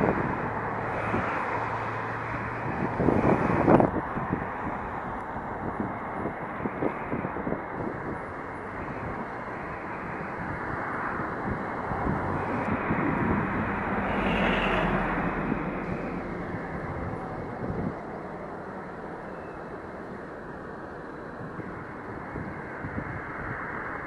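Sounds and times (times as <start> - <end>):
train running past: 7.8 - 24.0.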